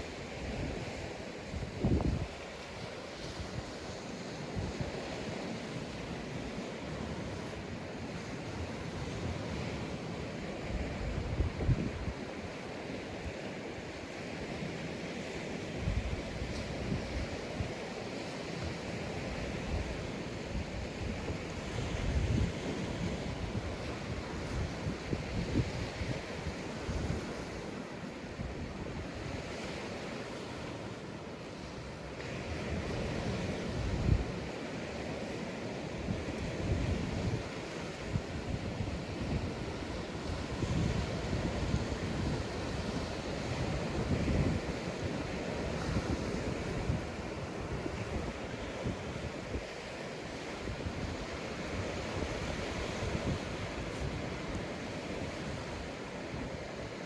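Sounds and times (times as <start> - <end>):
surf washing onto beach: 0.0 - 57.0
wind buffeting microphone: 0.5 - 2.6, 10.8 - 12.4, 19.2 - 27.6, 32.5 - 34.5, 36.0 - 49.7.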